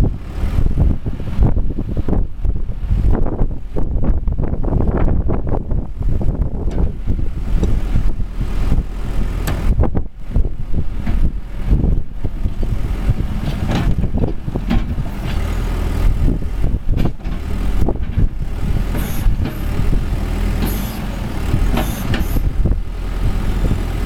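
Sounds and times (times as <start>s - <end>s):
diesel engine running: 0.0s - 24.0s
knocks and clanks: 13.4s - 15.5s.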